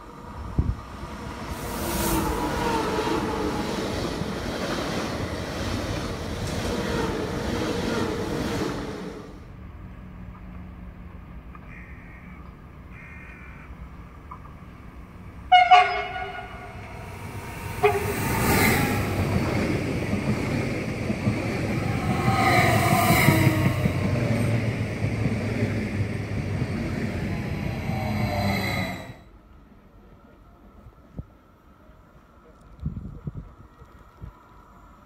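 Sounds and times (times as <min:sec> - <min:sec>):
train rushing past: 0:00.0 - 0:10.6, 0:14.6 - 0:29.4
train horn: 0:15.5 - 0:17.0, 0:17.8 - 0:18.2.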